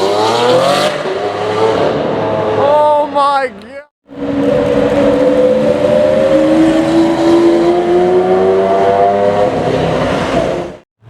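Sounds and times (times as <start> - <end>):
supercar engine accelerating: 4.1 - 10.8.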